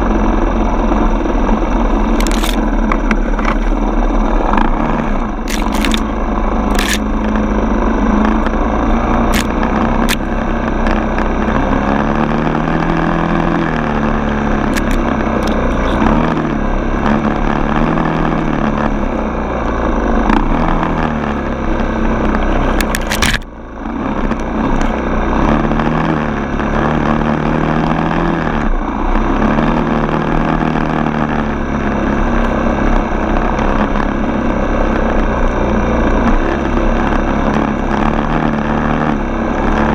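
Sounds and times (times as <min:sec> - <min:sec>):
dirt bike engine revving: 0:00.0 - 0:39.9
sharp clicks: 0:02.1 - 0:03.8, 0:05.4 - 0:07.4, 0:09.3 - 0:11.0, 0:14.6 - 0:16.1, 0:22.3 - 0:23.5.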